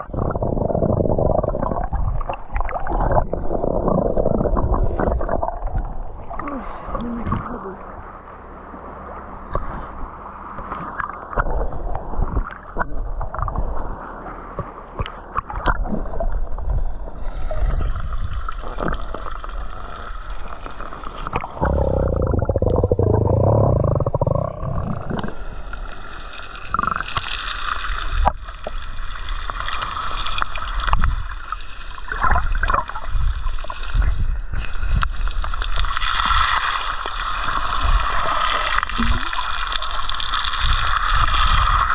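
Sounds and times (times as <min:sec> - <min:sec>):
low rumble: 0:00.0 - 0:26.9
rush of water: 0:00.0 - 0:41.9
water sloshing and gurgling: 0:00.0 - 0:41.9.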